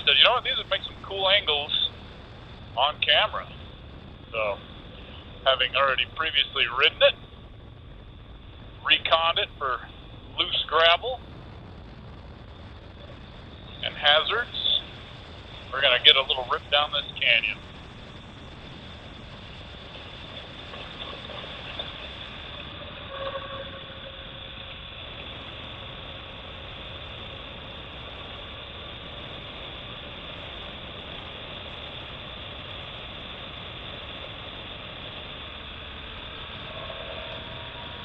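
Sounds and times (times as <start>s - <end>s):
wind rushing over microphone: 0.0s - 38.0s.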